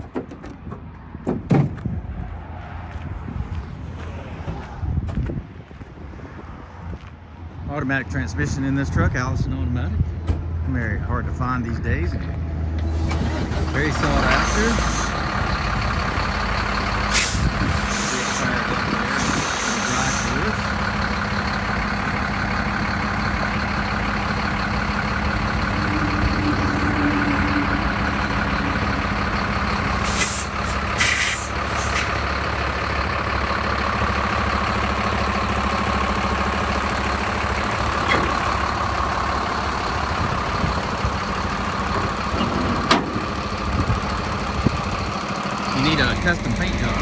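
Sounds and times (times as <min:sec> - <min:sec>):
diesel truck engine idling: 0:10.0 - 0:47.0
air hiss bursts: 0:17.1 - 0:18.5, 0:30.0 - 0:32.1.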